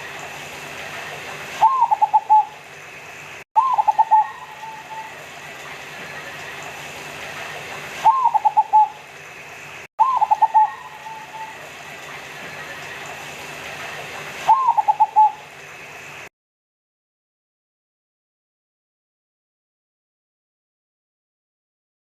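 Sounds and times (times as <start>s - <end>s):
dove cooing: 1.6s - 2.6s, 3.6s - 5.3s, 8.0s - 9.0s, 10.0s - 11.8s, 14.5s - 15.4s.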